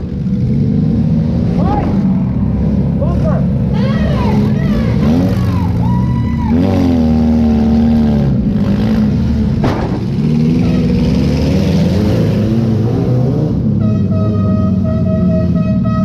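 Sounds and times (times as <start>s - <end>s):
car engine revving: 0.0s - 16.0s
sharp bang: 9.6s - 10.3s.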